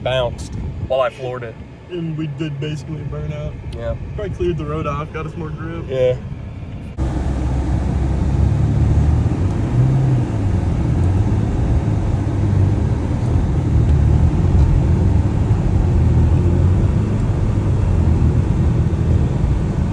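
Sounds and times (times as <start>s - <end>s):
car engine cruising: 0.0s - 19.9s
tyre road noise: 0.0s - 19.9s.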